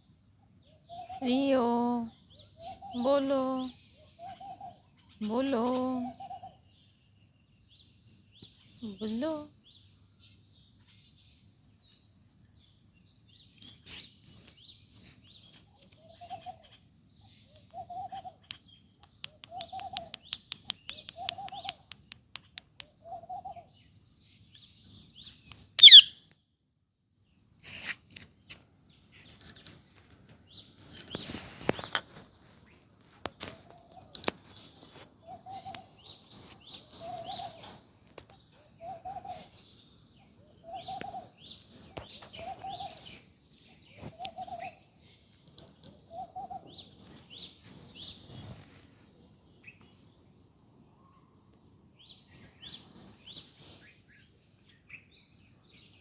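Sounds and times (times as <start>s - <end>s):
parrot and birds chirping: 13.3s - 26.3s, 33.6s - 48.8s
shrill parrot squawk: 25.8s - 26.2s.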